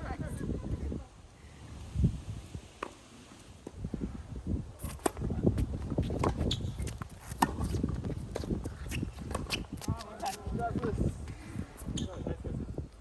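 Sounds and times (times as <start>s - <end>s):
wind buffeting microphone: 0.0s - 2.8s, 3.7s - 13.0s.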